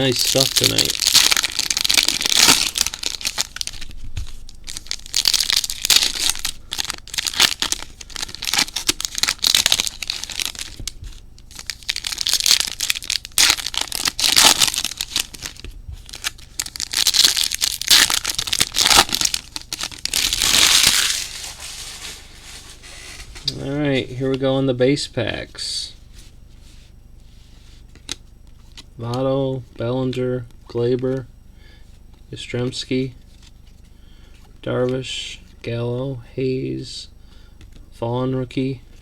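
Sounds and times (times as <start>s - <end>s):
wrappers crinkling and tearing: 0.0s - 23.5s.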